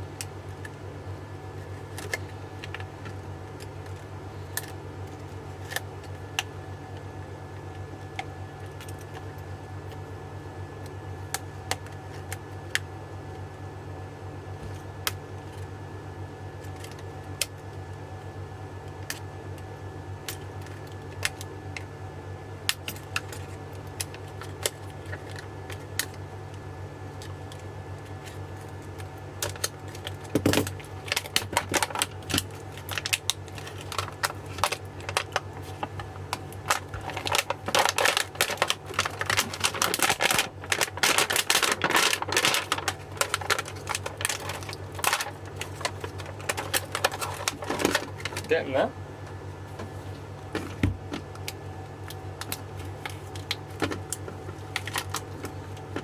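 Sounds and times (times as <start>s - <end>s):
steady low hum: 0.0s - 56.0s
plastic wrap cutting and crackling: 28.1s - 48.5s.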